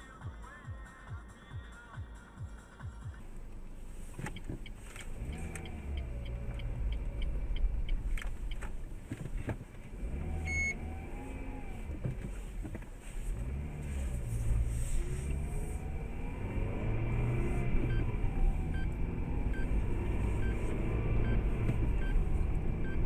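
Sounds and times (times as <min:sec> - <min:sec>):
road rumble: 0:03.1 - 0:23.0
car engine revving: 0:03.2 - 0:23.0
short beep: 0:10.5 - 0:10.8.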